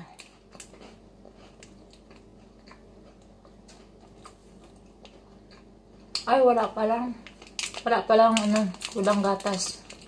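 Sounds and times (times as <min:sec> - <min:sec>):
person chewing a snack: 0:00.0 - 0:06.2.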